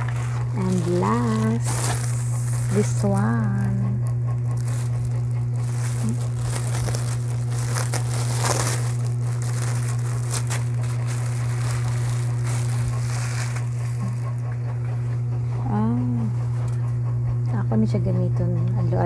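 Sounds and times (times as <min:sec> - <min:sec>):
plastic packaging crinkling: 0:00.0 - 0:14.8
steady low hum: 0:00.0 - 0:19.0.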